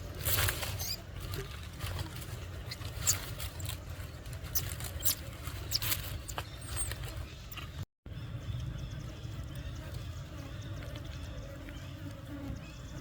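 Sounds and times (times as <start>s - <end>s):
baby monkey squeaking: 0.4s - 1.0s, 2.7s - 3.8s, 4.4s - 7.6s.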